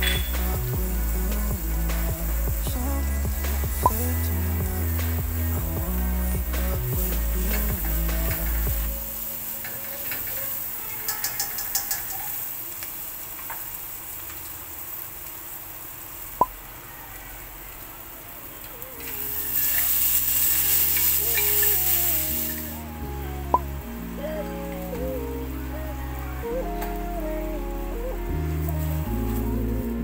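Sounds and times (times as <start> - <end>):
sharp ping: 0.0 - 0.5
background music: 0.0 - 12.0, 18.7 - 30.0
garlic and onion sizzling in oil: 0.0 - 22.9.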